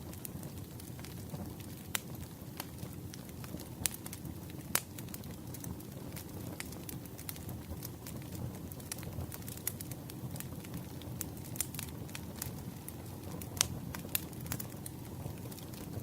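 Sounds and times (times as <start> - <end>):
fire pops and snaps: 0.0 - 16.0.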